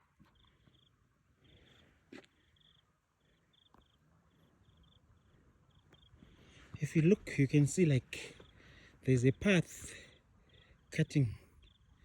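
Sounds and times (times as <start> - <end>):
faint insect chirping: 0.0 - 6.6, 8.2 - 9.0, 9.8 - 12.0.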